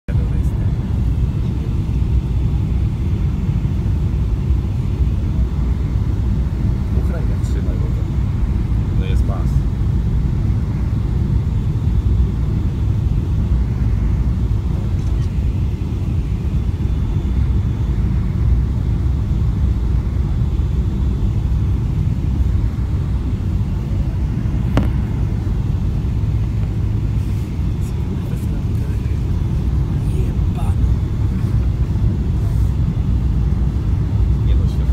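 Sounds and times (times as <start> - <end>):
airliner low rumble: 0.1 - 34.9.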